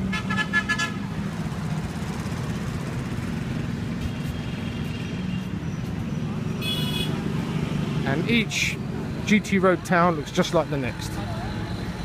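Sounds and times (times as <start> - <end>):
highway traffic drone: 0.0 - 12.0
vehicle horn: 0.1 - 1.0, 6.6 - 7.2.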